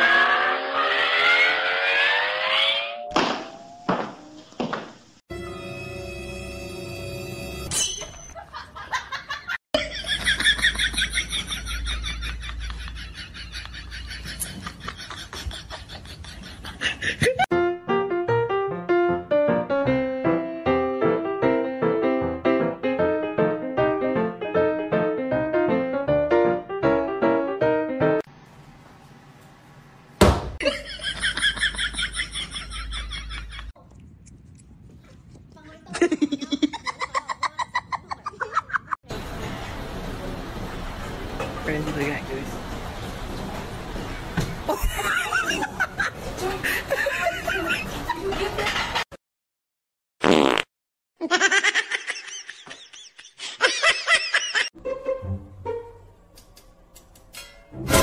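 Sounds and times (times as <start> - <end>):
sudden bang: 3.1 - 5.0.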